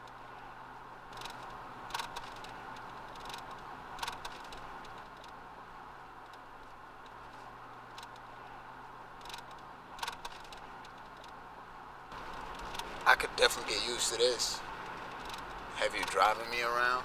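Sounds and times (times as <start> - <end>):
sharp clicks: 1.1 - 5.4, 9.2 - 11.4, 14.8 - 16.6.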